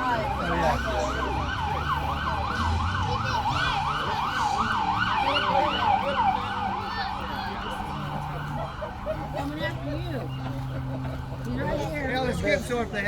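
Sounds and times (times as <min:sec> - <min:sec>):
emergency siren yelping: 0:00.0 - 0:09.5.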